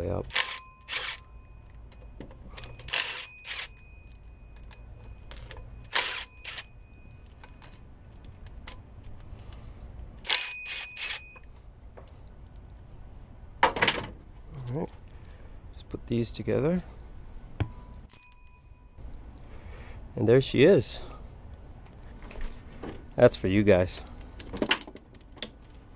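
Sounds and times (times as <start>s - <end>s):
sockets and ratchet clinking: 0.2s - 9.6s, 10.2s - 12.8s, 17.6s - 19.0s, 24.4s - 25.8s.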